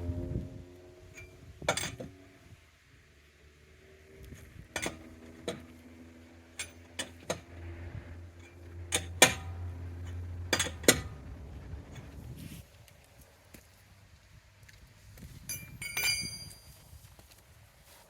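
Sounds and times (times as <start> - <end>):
low hum: 0.0 - 14.5
lug wrench clinking on metal: 1.1 - 2.2, 4.7 - 5.8, 6.5 - 7.6, 8.2 - 12.2, 15.4 - 16.8.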